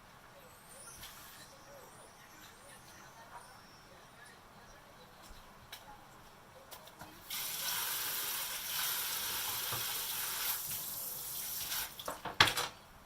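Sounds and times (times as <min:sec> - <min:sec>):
kitchen tap running: 0:07.2 - 0:12.7.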